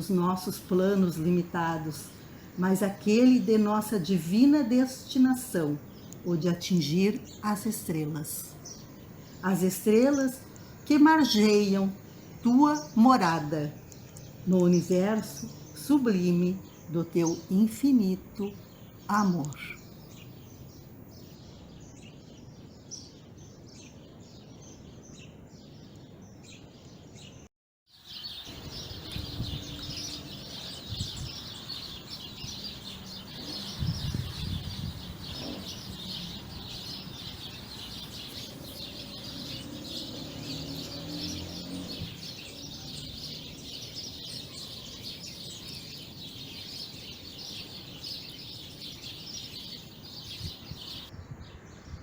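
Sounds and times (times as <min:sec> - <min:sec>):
birds chirping and singing: 0:00.0 - 0:52.0.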